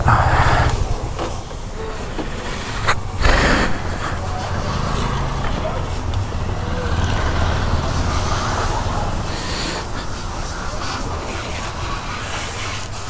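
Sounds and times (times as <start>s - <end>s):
road and wind noise: 0.0s - 12.8s
motorcycle engine running: 4.2s - 9.2s.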